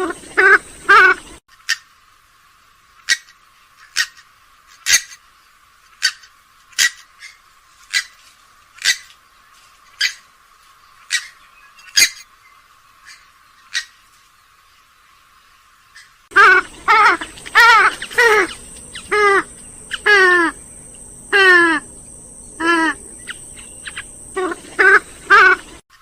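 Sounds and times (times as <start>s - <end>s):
swamphen short sharp calls: 16.0s - 25.8s.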